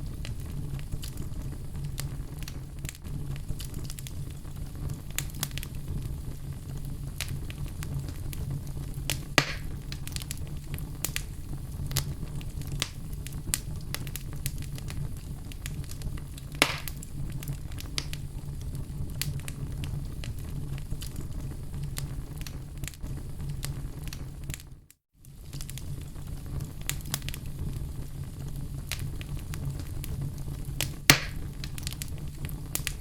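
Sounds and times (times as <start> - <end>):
wood fire crackling: 0.0 - 33.0
loud wood snaps: 9.4 - 9.8, 16.6 - 17.0, 30.8 - 31.4.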